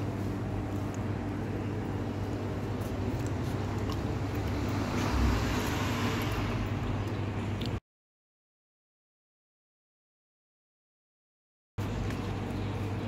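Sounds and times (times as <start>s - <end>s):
road traffic noise: 0.0s - 7.8s, 11.8s - 13.0s.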